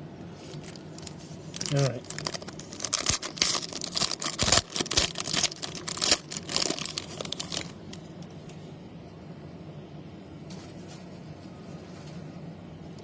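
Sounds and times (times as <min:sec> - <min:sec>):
wrapper tearing and crinkling: 0:00.4 - 0:08.0.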